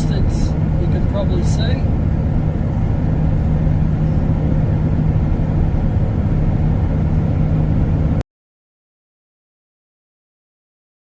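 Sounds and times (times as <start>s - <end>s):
road noise: 0.0s - 8.2s
truck engine drone: 0.0s - 8.2s.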